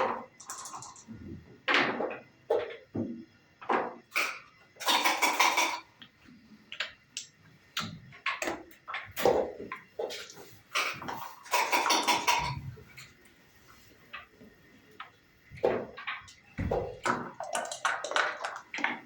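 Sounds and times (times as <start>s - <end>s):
checkers clacking on a board: 0.0s - 1.1s, 4.8s - 5.8s, 8.2s - 12.6s, 17.0s - 19.0s
dice rattled in a cup: 0.4s - 1.1s, 17.3s - 19.0s.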